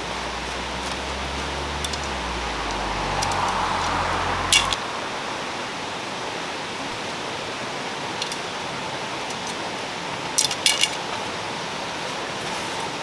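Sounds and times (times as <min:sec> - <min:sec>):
low rumble: 0:00.0 - 0:06.7
stream rushing: 0:00.0 - 0:10.2.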